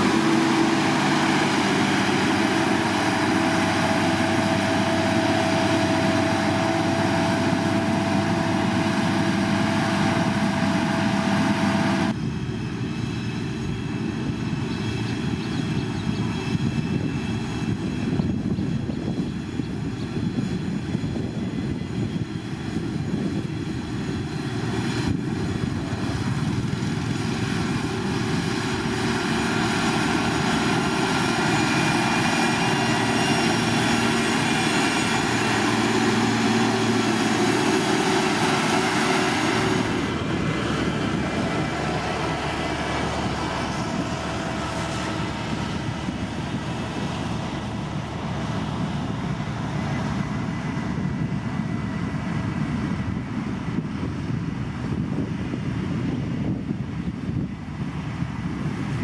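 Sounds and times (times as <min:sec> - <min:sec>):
heavy machinery engine drone: 0:00.0 - 0:59.0
high-pitched machine whine: 0:20.1 - 0:50.5.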